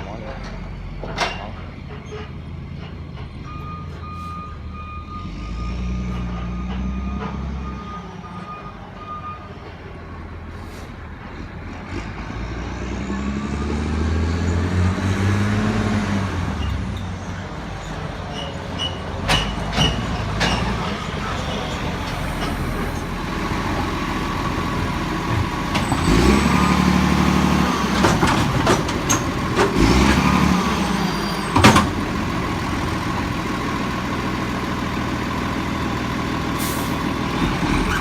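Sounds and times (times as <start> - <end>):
reversing alarm beeping: 3.4 - 9.6
engine revving: 11.4 - 16.8, 21.9 - 33.4, 36.6 - 38.0
garbage truck engine running: 15.4 - 38.0.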